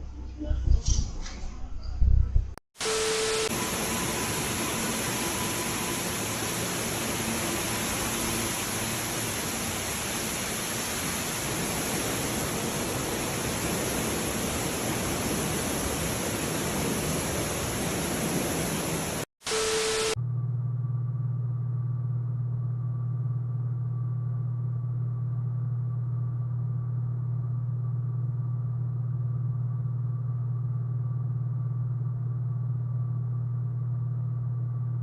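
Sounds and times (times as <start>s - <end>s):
steady static hiss: 2.8s - 20.2s.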